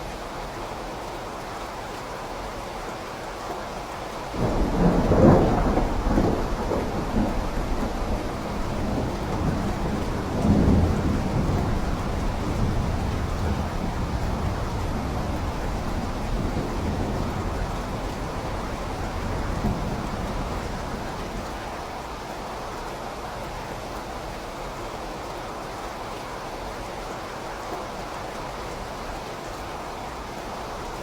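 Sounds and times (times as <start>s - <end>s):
steady rain: 0.0s - 31.0s
thunder rumbling: 4.4s - 21.6s.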